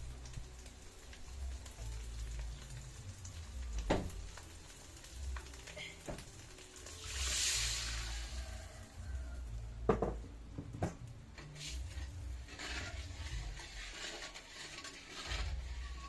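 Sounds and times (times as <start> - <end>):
frying hiss: 0.0 - 16.0
utensil knocking on pan: 9.9 - 11.0.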